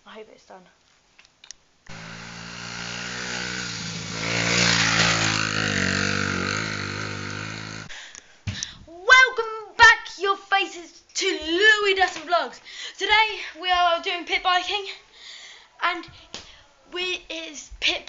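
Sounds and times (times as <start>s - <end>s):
dirt bike engine passing: 1.9s - 7.9s.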